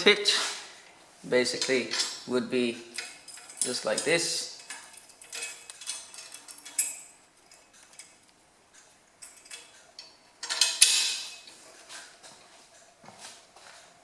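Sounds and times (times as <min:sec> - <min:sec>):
ringing clatter of metal on metal: 0:02.9 - 0:08.2, 0:09.2 - 0:11.5.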